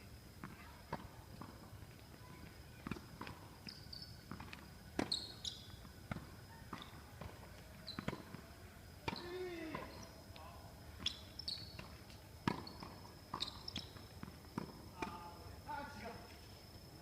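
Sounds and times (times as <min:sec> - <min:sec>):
tennis balls bouncing on court: 0:00.4 - 0:10.4, 0:11.0 - 0:15.4
tennis balls struck by rackets: 0:02.5 - 0:08.4, 0:09.0 - 0:10.0, 0:11.0 - 0:15.4.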